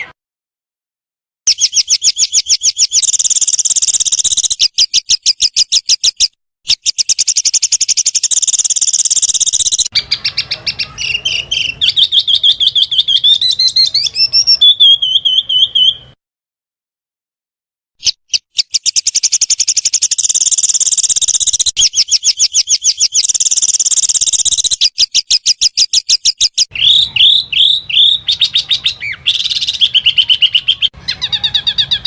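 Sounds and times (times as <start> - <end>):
songbird rapid high notes: 1.5 - 5.1, 6.7 - 15.0, 18.0 - 30.8
bird wavering trill: 1.5 - 5.6, 6.7 - 16.0, 18.1 - 32.0.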